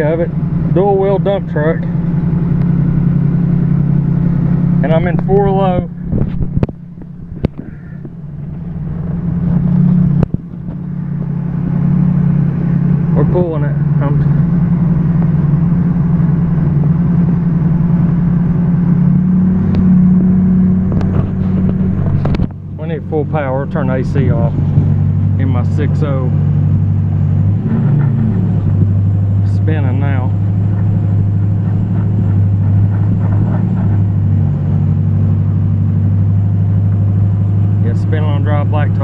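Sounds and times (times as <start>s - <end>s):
diesel engine under heavy load: 0.0s - 39.0s
tires spinning on asphalt: 0.0s - 39.0s.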